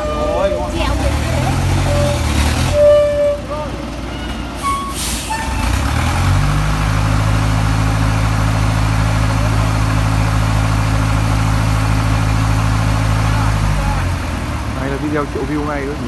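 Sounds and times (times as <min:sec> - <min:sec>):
heavy machine engine revving: 0:00.0 - 0:16.0.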